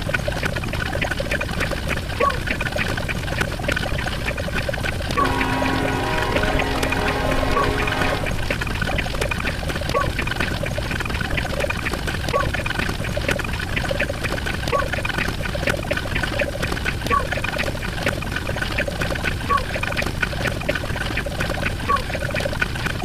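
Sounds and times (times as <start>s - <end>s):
water pouring or trickling: 0.0s - 23.0s.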